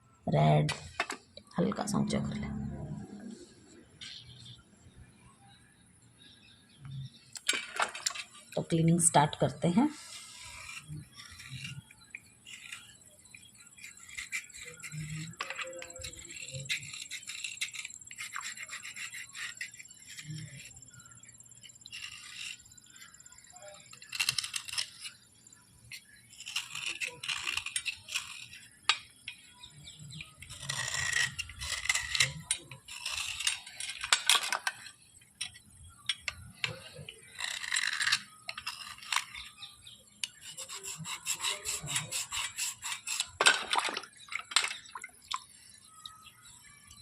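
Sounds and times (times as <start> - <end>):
brush scraping hard bars: 9.9 - 20.8, 25.9 - 29.0, 29.8 - 43.9.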